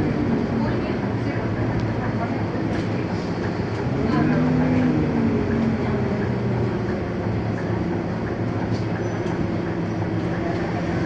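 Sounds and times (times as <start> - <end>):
bus diesel engine running: 0.0 - 11.0
road and cabin rumble: 0.0 - 11.0.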